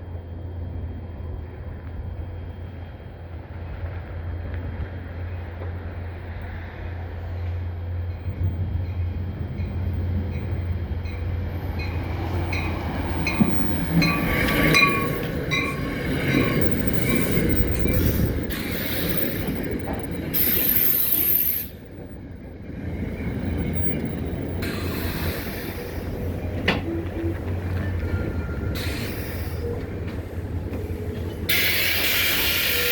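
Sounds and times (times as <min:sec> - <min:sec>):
train wheels clicking over rail joints: 0:07.4 - 0:22.2, 0:22.8 - 0:32.9
train brakes squealing: 0:11.2 - 0:21.9, 0:23.2 - 0:32.9.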